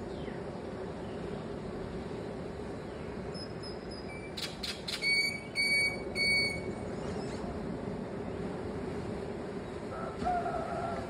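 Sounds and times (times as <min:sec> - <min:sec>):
bird calling: 0:03.3 - 0:07.4.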